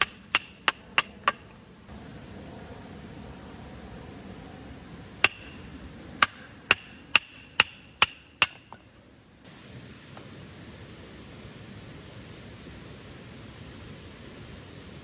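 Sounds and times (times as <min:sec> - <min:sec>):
sharp chopping strikes: 0:00.0 - 0:01.6, 0:05.2 - 0:05.6, 0:06.2 - 0:08.9.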